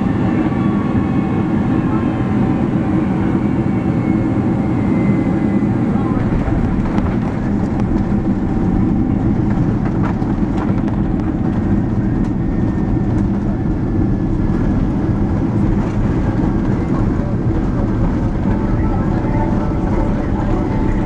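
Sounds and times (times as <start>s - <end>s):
airplane cabin low rumble: 0.0s - 21.0s.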